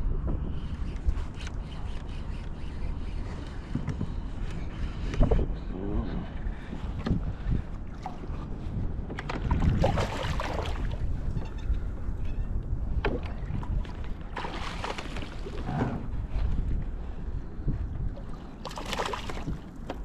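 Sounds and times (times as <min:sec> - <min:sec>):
wind rumble on microphone: 0:00.0 - 0:20.0
water splashing around kayak: 0:07.9 - 0:12.2, 0:12.8 - 0:17.0, 0:18.0 - 0:20.0.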